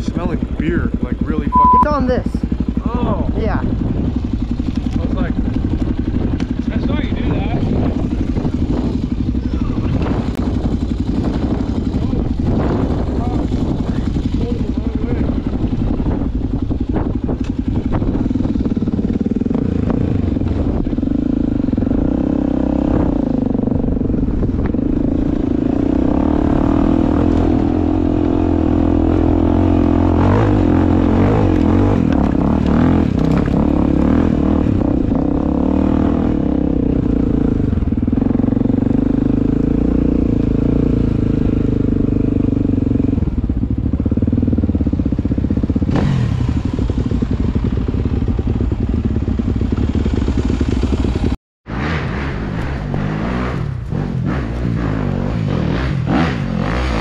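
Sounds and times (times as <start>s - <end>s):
dirt bike engine running: 0.0s - 57.0s
clatter from rough ground: 4.6s - 9.0s, 31.4s - 34.1s.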